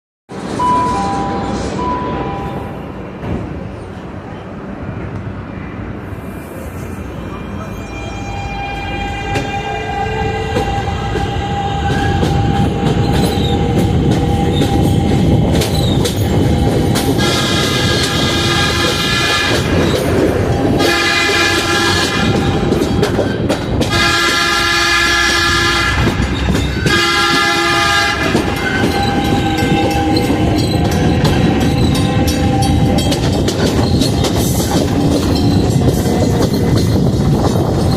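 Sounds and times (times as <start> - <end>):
train rumble and wheel clatter: 0.3 - 37.9
train horn blasts: 8.1 - 15.4, 17.2 - 23.2, 23.8 - 33.4.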